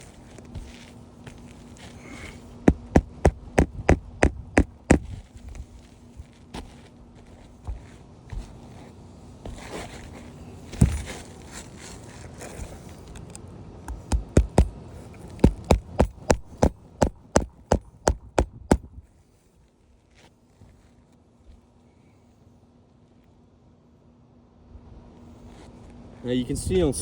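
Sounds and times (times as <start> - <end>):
scrape: 0.0 - 2.6, 6.6 - 13.0, 25.2 - 25.9
loud knock: 2.7 - 5.1
hammer strikes on roof: 2.7 - 5.2, 13.9 - 14.8, 15.4 - 19.0.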